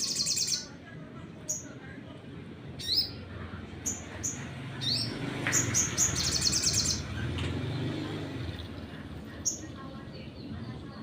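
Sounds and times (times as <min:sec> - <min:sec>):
bird chirping and trilling: 0:00.0 - 0:00.7, 0:02.8 - 0:10.9.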